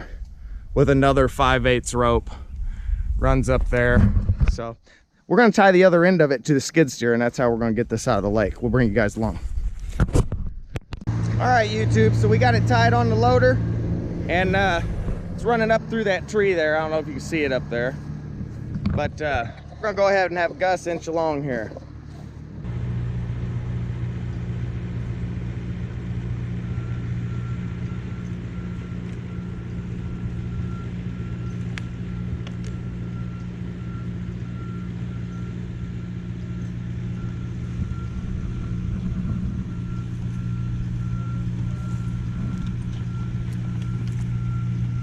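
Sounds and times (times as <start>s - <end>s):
skid steer engine running: 11.1s - 45.0s
backup alarm beeping: 26.2s - 45.0s.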